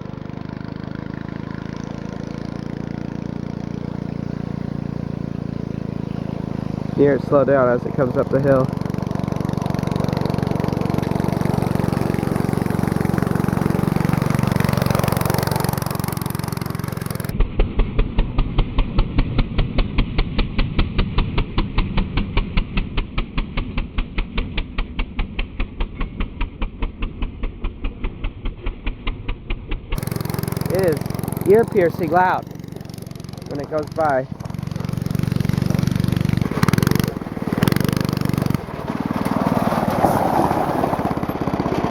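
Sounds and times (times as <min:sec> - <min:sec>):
go-kart engine under load: 0:00.0 - 0:41.9
rapid pulsing: 0:25.7 - 0:41.9.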